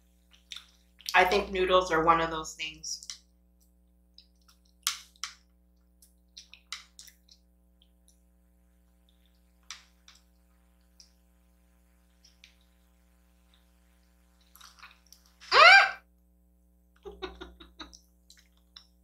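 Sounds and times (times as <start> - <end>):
person chewing wet food: 0.2 - 1.1, 5.8 - 8.2, 9.0 - 11.2, 12.0 - 15.4.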